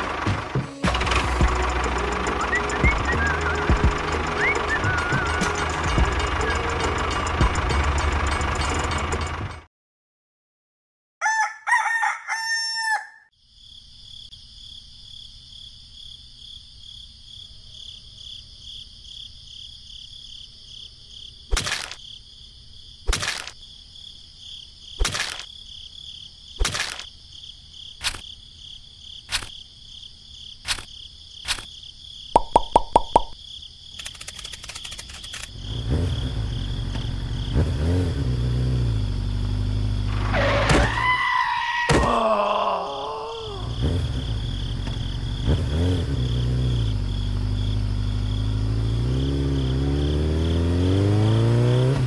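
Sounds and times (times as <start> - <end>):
rooster crowing: 11.2 - 13.3
sharp clicks: 23.1 - 23.6, 26.6 - 27.1, 32.4 - 35.6.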